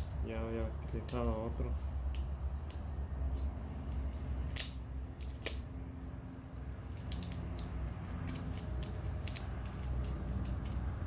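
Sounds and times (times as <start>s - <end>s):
steady low hum: 0.0s - 11.0s
small parts clicking: 6.9s - 10.9s.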